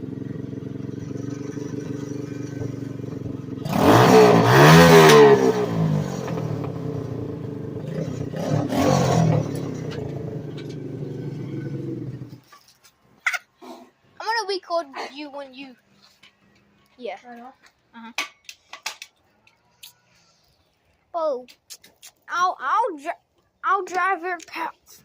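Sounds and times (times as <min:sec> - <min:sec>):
dirt bike engine revving: 0:00.0 - 0:12.4.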